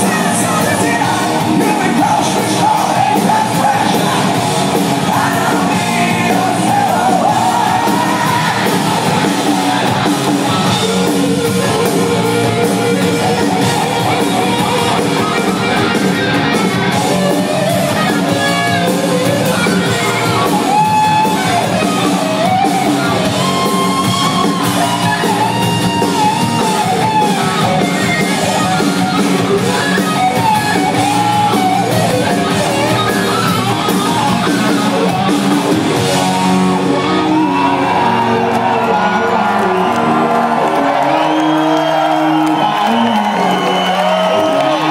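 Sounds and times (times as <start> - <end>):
bending lead guitar melody: 0.0 - 44.9
rock band playing live: 0.0 - 44.9.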